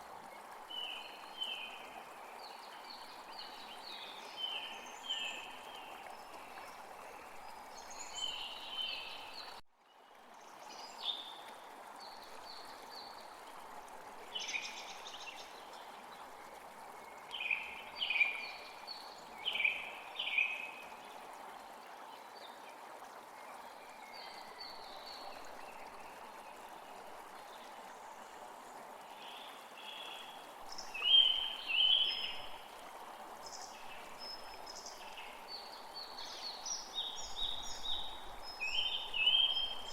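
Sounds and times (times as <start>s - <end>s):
songbirds calling and singing: 17.2s - 20.8s, 29.2s - 32.6s, 33.4s - 39.9s.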